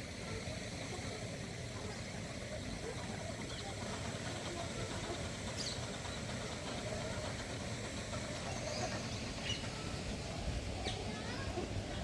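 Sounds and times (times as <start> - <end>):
low outdoor rumble: 0.0 - 12.0
faint bird chirps: 5.5 - 6.3, 8.4 - 10.0.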